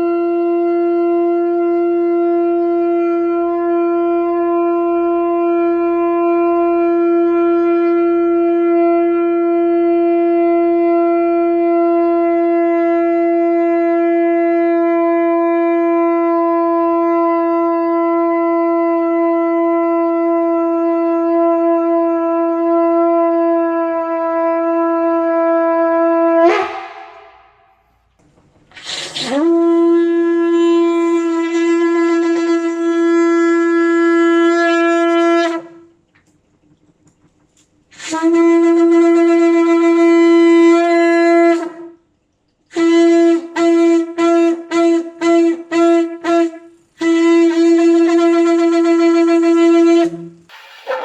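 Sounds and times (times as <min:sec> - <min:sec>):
shofar blast: 0:00.0 - 0:28.0, 0:42.8 - 0:51.0.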